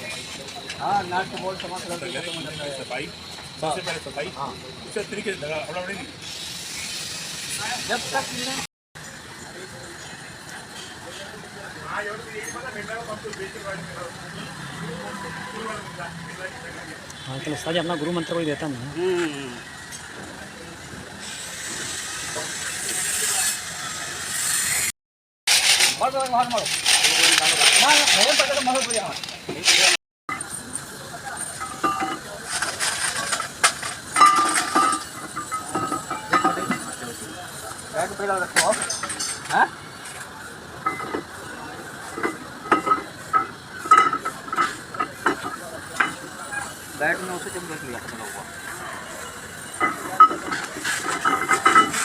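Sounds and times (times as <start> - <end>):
metal tools clinking: 25.5 - 30.6, 31.3 - 37.2, 38.5 - 40.2, 42.0 - 46.8, 49.2 - 52.0.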